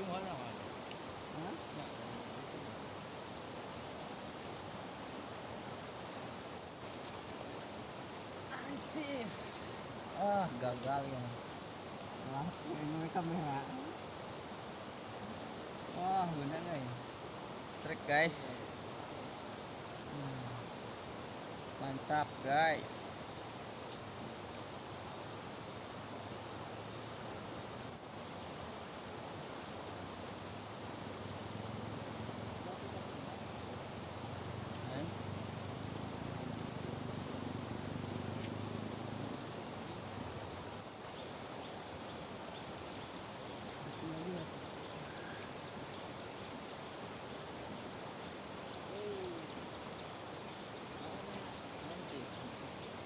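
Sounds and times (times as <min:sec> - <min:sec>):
river current rushing: 0:00.0 - 0:53.0
faint hoot-like call: 0:48.9 - 0:49.6.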